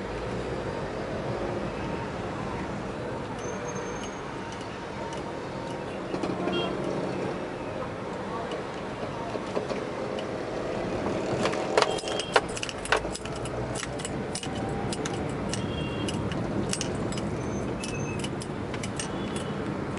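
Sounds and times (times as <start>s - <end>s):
city road traffic: 0.0s - 19.9s
metallic jingling and clinking: 11.8s - 19.7s.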